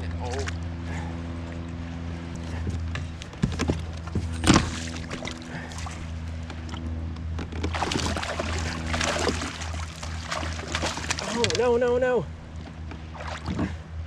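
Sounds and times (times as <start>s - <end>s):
steady low hum: 0.0s - 14.0s
water splashing: 4.4s - 6.2s, 7.5s - 11.8s, 12.5s - 13.8s.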